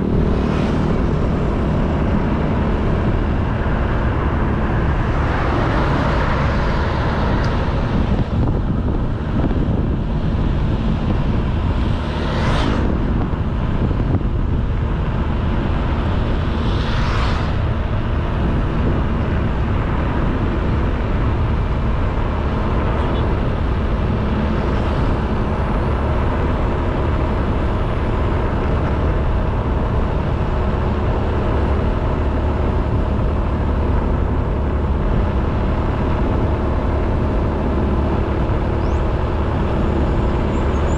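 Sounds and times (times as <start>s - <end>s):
brief whooshes: 12.0s - 13.0s, 16.4s - 17.8s.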